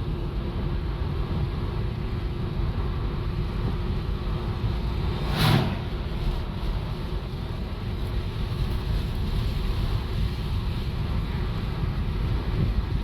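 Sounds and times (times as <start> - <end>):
engine and road rumble: 0.0 - 13.0
rush of noise: 4.0 - 8.0.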